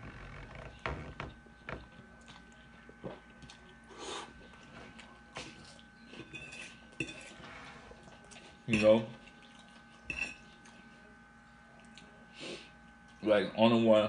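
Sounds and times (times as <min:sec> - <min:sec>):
person chewing spaghetti: 0:00.7 - 0:10.8.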